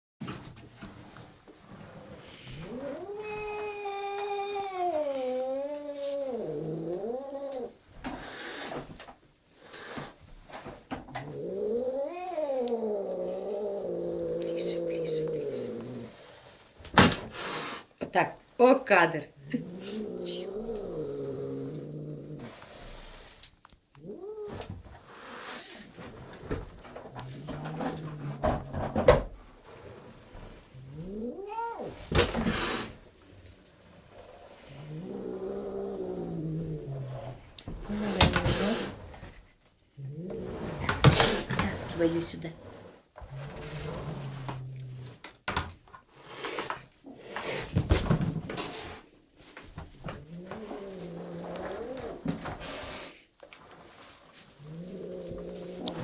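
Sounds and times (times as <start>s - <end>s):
cat hissing: 2.2s - 8.9s, 11.2s - 18.0s, 19.4s - 23.4s, 30.8s - 33.0s, 34.6s - 39.4s, 40.1s - 44.8s, 46.1s - 47.9s, 48.5s - 49.1s
cat yowling: 2.7s - 7.8s, 11.4s - 15.8s, 31.0s - 32.1s
cat yowl: 31.0s - 32.1s.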